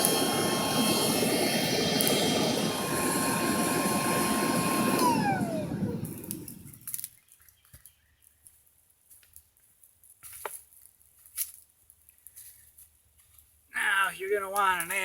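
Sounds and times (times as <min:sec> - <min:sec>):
air pump blowing: 0:00.0 - 0:07.0.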